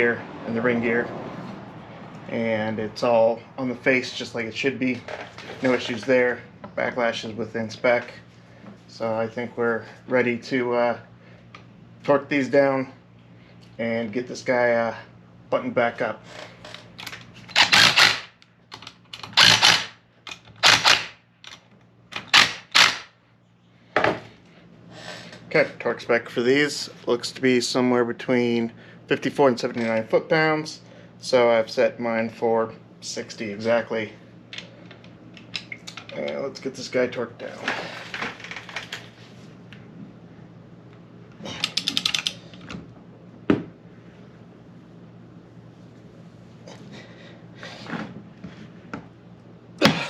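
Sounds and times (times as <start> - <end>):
faint steady hum: 0.0 - 50.0
ratchet wrench clicking: 17.0 - 18.3, 19.1 - 21.6, 41.6 - 42.4.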